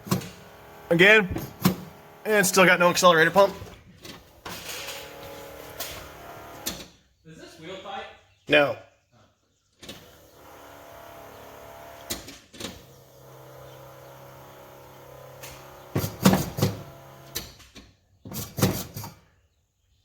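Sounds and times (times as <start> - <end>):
engine starter cranking: 0.0 - 6.9, 9.8 - 17.8
loud clunks: 1.3 - 2.1.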